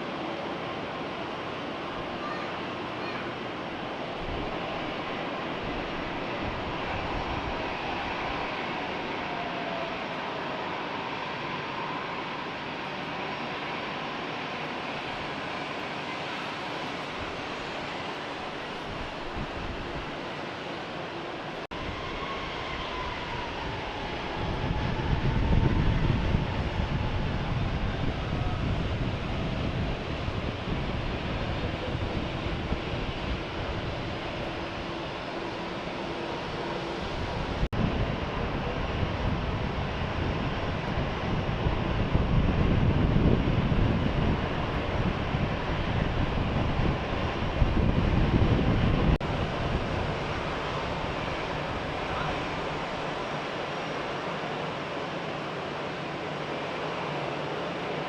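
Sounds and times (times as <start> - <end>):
jet engines rumbling: 0.0 - 58.0
wind buffeting microphone: 4.1 - 10.0, 16.5 - 20.4, 21.6 - 53.5.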